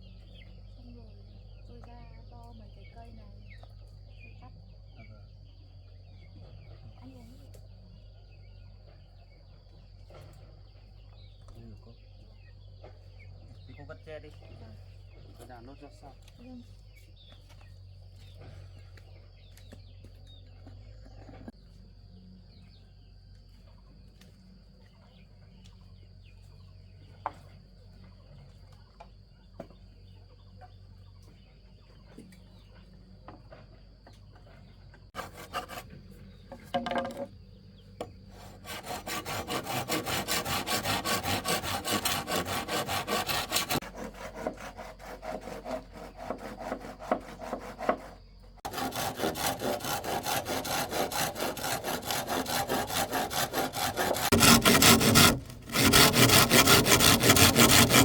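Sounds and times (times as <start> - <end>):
bamboo being sawn by hand: 35.1 - 37.3, 38.0 - 58.0
scattered knocks: 53.3 - 58.0.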